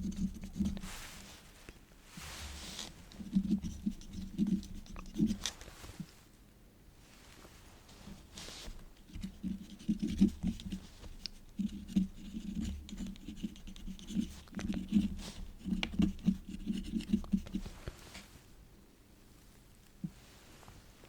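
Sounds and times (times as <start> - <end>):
pen nib scratching on paper: 0.0 - 1.2, 3.1 - 5.6, 9.0 - 17.8.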